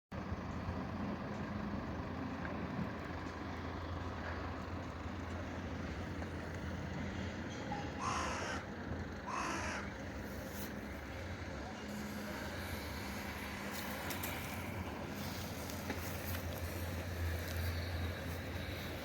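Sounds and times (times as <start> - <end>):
distant traffic rumble: 0.2 - 19.0
bird cawing: 7.8 - 10.2.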